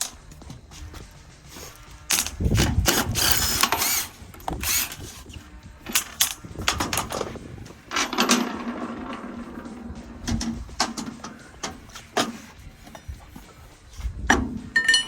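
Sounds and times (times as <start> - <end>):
metal clicks and clanks: 2.0 - 5.1, 5.8 - 15.0.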